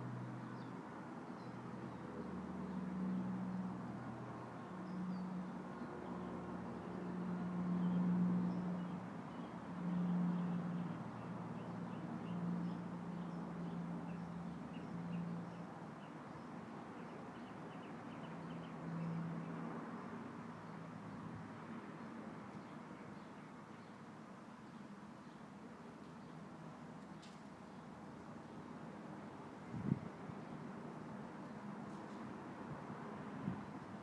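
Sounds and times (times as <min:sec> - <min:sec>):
leaves rustling in breeze: 0:31.3 - 0:34.0.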